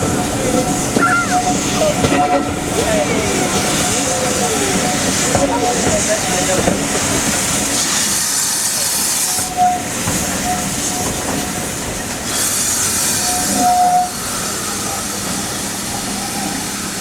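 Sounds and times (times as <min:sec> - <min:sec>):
high-pitched squeals: 0:00.0 - 0:05.9
steam hissing: 0:00.0 - 0:17.0
steam train moving: 0:00.0 - 0:17.0.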